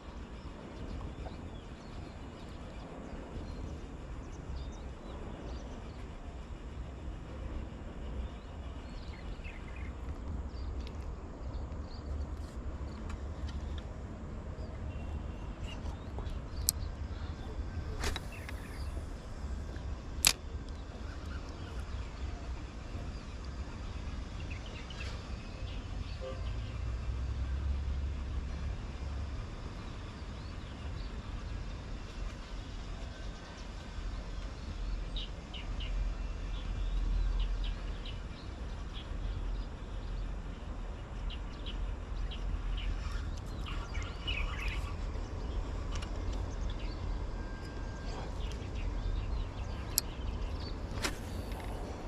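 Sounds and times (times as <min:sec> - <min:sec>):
steady low rumble: 0:00.0 - 0:26.1
sharp clicks: 0:20.2 - 0:20.8.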